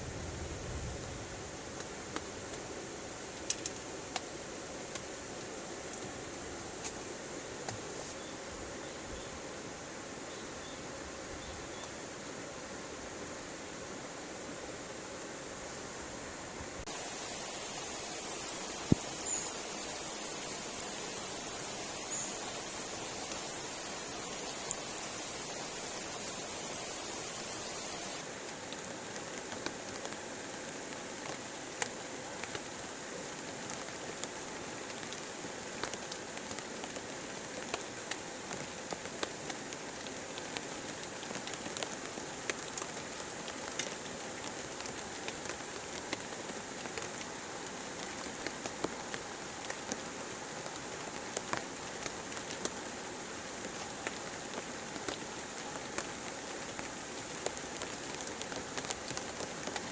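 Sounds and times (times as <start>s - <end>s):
sharp raindrop hits: 16.8s - 28.2s
heavy rain falling: 16.8s - 59.9s.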